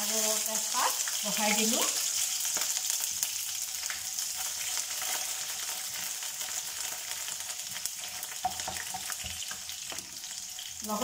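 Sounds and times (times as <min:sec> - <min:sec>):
onions sizzling in hot oil: 0:00.0 - 0:11.0
spatula stirring: 0:07.6 - 0:10.8.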